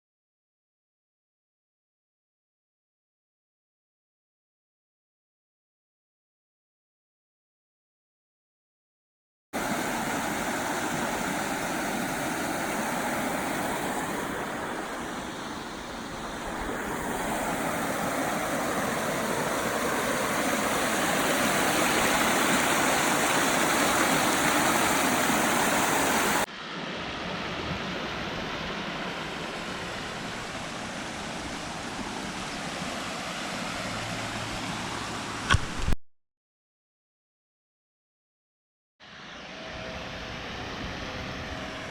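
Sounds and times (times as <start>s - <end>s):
stream water rushing: 9.6s - 35.9s.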